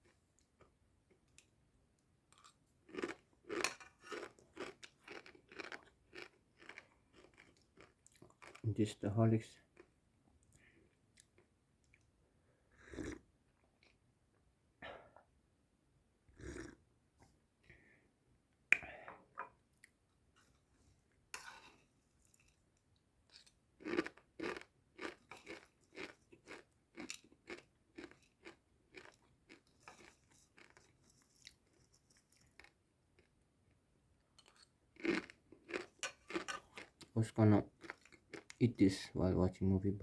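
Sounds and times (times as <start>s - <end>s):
person chewing crunchy food: 2.4s - 8.6s, 16.4s - 16.8s, 23.8s - 33.3s, 34.4s - 38.6s.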